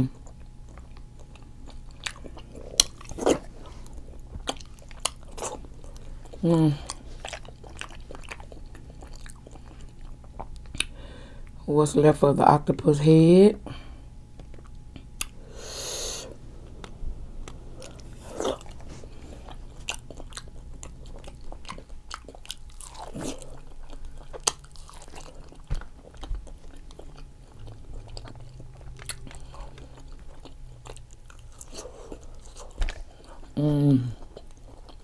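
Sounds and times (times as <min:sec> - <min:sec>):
chewing and biting: 0:00.1 - 0:11.0, 0:14.3 - 0:15.4, 0:16.8 - 0:35.0
wet mouth clicks and smacks: 0:10.3 - 0:11.0.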